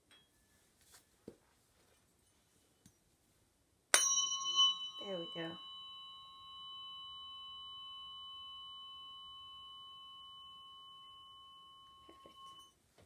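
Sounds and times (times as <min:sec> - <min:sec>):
tuning fork ringing: 0:03.9 - 0:12.8.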